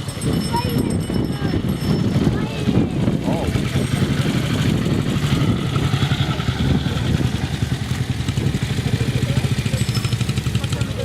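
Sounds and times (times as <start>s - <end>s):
vehicle engine idling: 2.8s - 11.0s.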